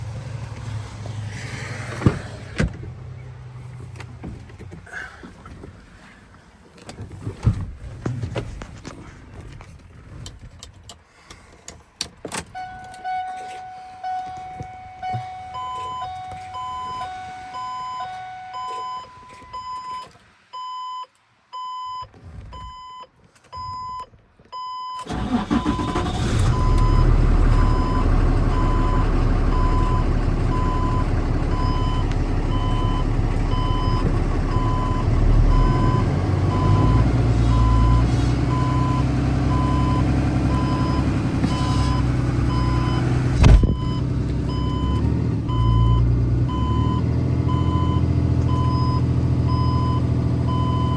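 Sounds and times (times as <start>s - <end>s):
truck engine starting and idling: 0.0s - 7.2s, 9.9s - 19.2s, 25.0s - 50.9s
repeating warning beep: 12.6s - 20.0s.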